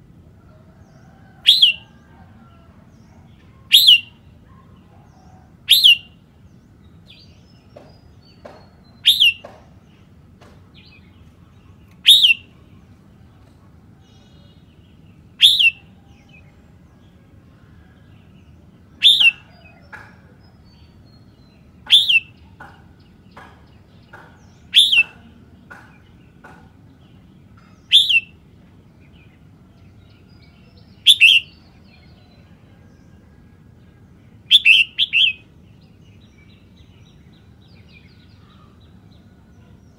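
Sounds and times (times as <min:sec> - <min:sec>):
bird singing high-pitched phrase: 0:01.4 - 0:01.8, 0:03.5 - 0:04.6, 0:05.7 - 0:06.2, 0:08.9 - 0:09.5, 0:11.8 - 0:12.7, 0:15.3 - 0:16.0, 0:19.0 - 0:19.6, 0:21.8 - 0:22.5, 0:24.7 - 0:25.4, 0:27.6 - 0:28.4, 0:30.2 - 0:31.8, 0:34.4 - 0:35.5
faint bird chirps: 0:03.1 - 0:06.1, 0:08.9 - 0:09.5, 0:11.8 - 0:12.9, 0:15.4 - 0:16.2, 0:19.0 - 0:20.0, 0:21.8 - 0:22.5, 0:24.7 - 0:25.4, 0:27.6 - 0:28.4, 0:30.3 - 0:33.6, 0:34.5 - 0:35.5.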